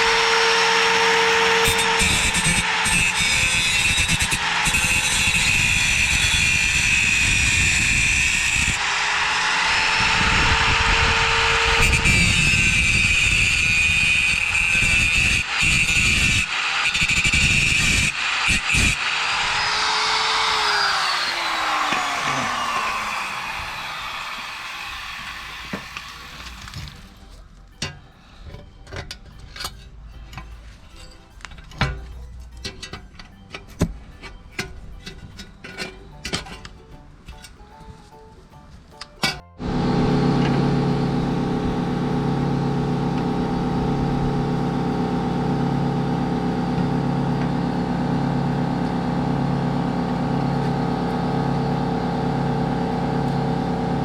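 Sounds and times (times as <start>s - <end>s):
angle grinder grinding steel: 0.0s - 27.3s, 39.6s - 54.0s
tools and metal clicking: 27.7s - 38.0s.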